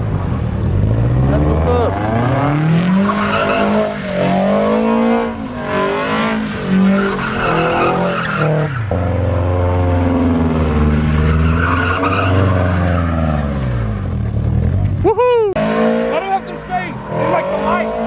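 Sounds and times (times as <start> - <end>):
car engine revving: 0.0 - 18.0
tyres squealing: 1.9 - 9.0, 10.7 - 13.5.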